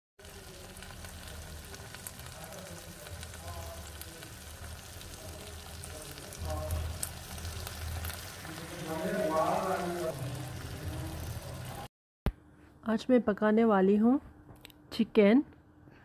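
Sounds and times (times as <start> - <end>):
food sizzling in a wok: 0.2 - 11.9.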